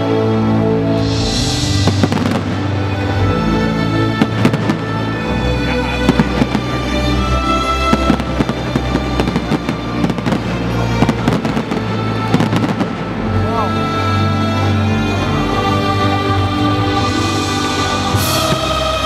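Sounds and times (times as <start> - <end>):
loud music: 0.0 - 19.0
fireworks bursting and crackling: 1.2 - 5.2, 5.8 - 7.1, 7.8 - 13.2.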